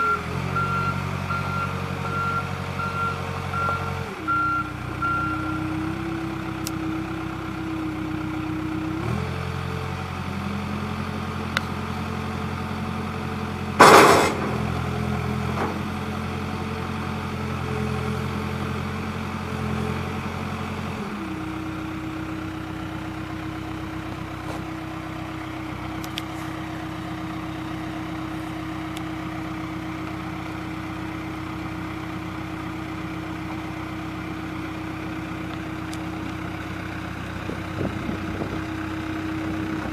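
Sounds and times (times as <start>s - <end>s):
diesel engine idling: 0.0s - 39.9s
loud metal clank: 13.8s - 14.8s.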